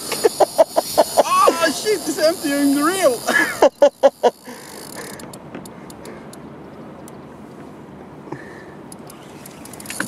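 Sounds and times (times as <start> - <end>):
river current rushing: 0.0 - 5.2
fishing reel drag clicking: 0.0 - 6.4, 8.9 - 10.0.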